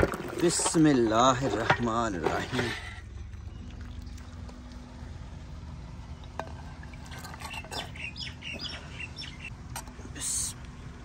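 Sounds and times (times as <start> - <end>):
bird chirping: 7.3 - 9.6.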